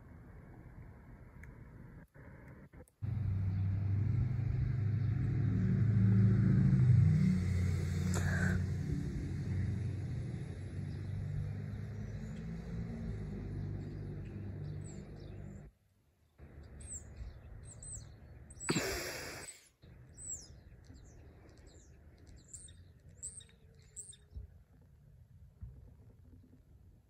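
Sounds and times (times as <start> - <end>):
low rumble with hum: 0.0 - 15.7
small birds chirping: 10.3 - 15.7, 16.3 - 24.9.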